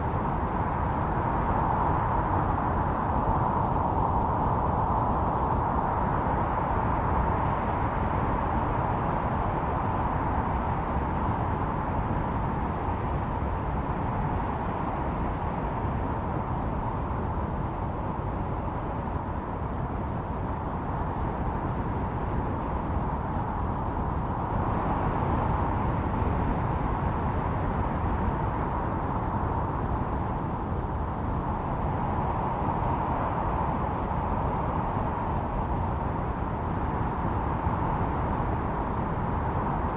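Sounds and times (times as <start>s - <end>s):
blizzard wind rushing: 0.0s - 39.9s.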